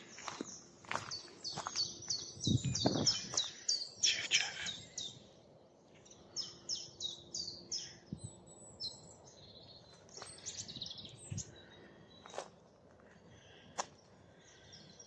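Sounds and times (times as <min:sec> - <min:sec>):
songbird twittering: 0:00.1 - 0:05.4, 0:06.0 - 0:12.6.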